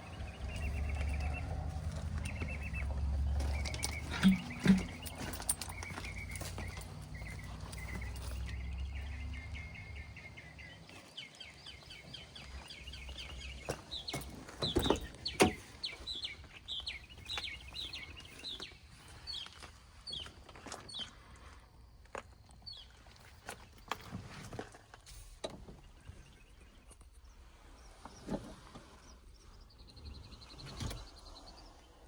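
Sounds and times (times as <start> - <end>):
birds chirping: 0.0 - 21.1.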